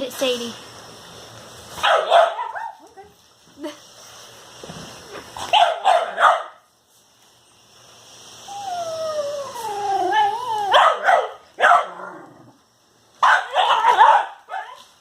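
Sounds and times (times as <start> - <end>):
dog barking: 1.8 - 2.9, 5.4 - 6.7, 10.7 - 12.1, 13.2 - 14.8
steam cleaner: 3.2 - 11.6
dog whining: 8.4 - 11.0.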